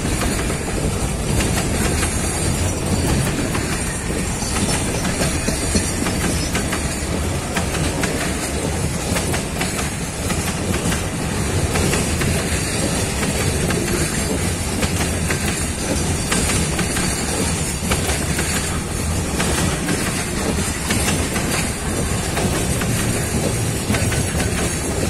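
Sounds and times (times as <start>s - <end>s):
wheels clacking over rail joints: 0.0s - 25.0s
wheels rumbling on rails: 0.0s - 25.0s.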